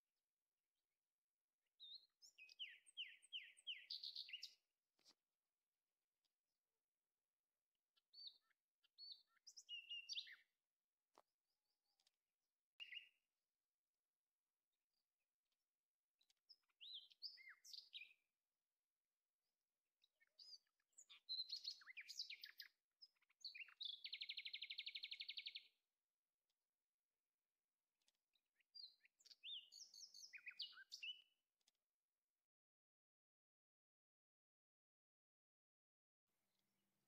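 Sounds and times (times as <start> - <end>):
birds chirping: 1.8 - 5.2, 8.0 - 11.2, 12.8 - 13.2, 16.2 - 18.3, 20.0 - 25.8, 28.0 - 31.8.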